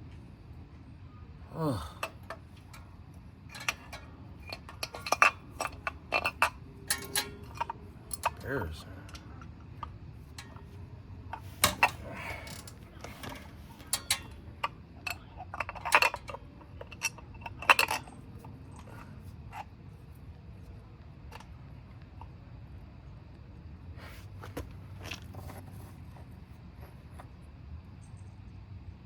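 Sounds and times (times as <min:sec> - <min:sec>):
metal tools clinking: 0:01.8 - 0:09.4, 0:10.3 - 0:19.2.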